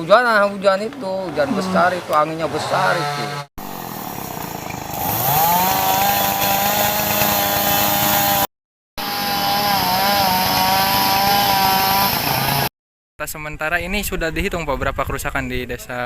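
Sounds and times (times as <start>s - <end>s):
chainsaw revving: 2.8s - 12.7s.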